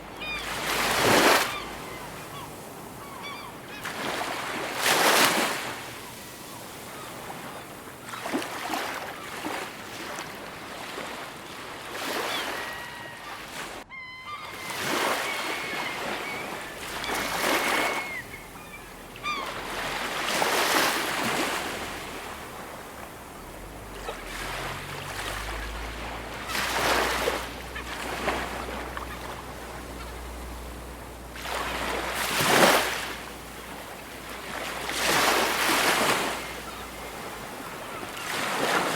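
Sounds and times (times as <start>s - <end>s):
ocean waves breaking on shore: 0.0s - 38.9s
short bird calls: 13.9s - 19.7s.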